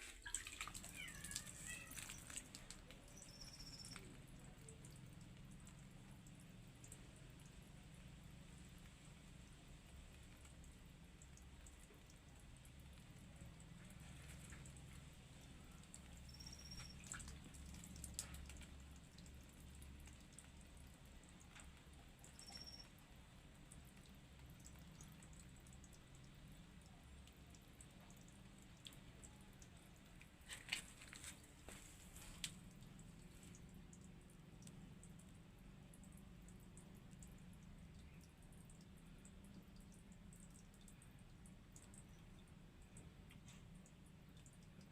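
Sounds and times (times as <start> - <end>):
water splashes: 0.0 - 4.0
small water splashes and drips: 0.0 - 44.9
songbird calls: 16.2 - 17.0.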